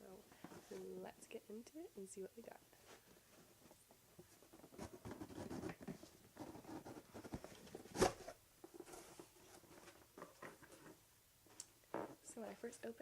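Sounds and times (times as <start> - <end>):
cardboard flaps rustling and scraping: 2.9 - 11.0.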